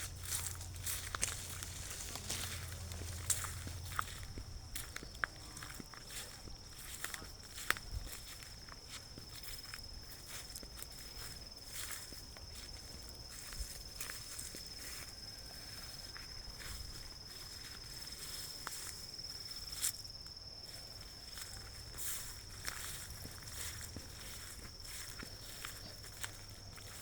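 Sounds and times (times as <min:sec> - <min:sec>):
insect trilling: 0:00.0 - 0:07.7
crackles and rustles: 0:00.0 - 0:14.7.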